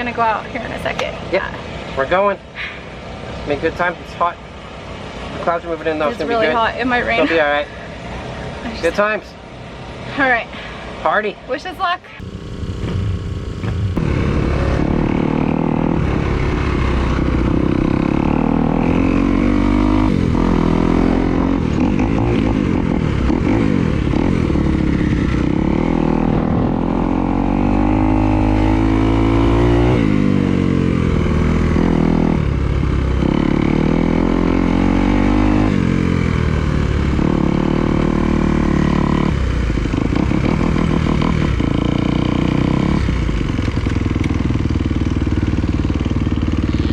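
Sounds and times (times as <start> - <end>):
dirt bike engine revving: 12.2 - 46.9.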